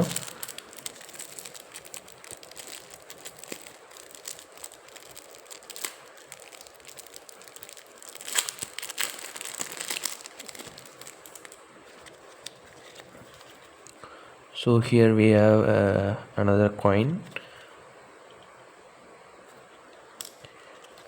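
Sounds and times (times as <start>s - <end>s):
plastic packaging crinkling: 0.0s - 14.0s, 20.2s - 21.0s.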